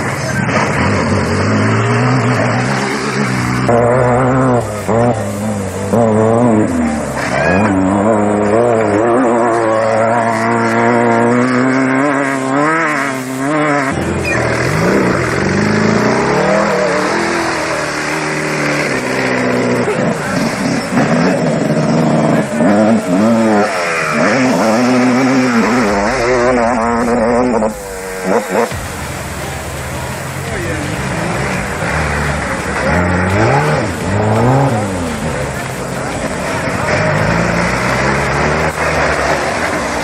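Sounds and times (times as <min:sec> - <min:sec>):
race vehicle engine revving: 0:00.0 - 0:40.0.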